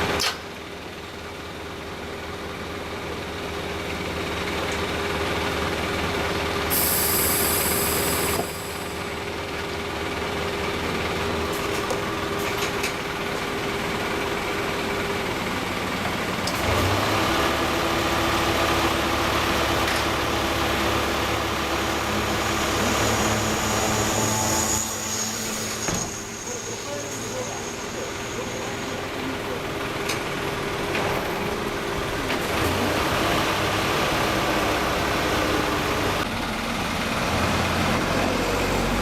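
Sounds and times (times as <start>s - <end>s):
heavy engine running: 0.0s - 39.0s.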